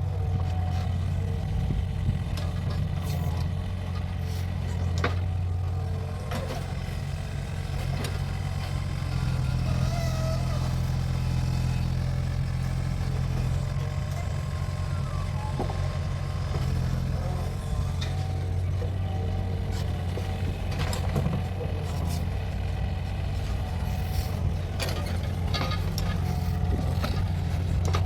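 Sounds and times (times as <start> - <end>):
excavator engine running: 0.0 - 28.0
faint machine squeal: 8.3 - 19.8.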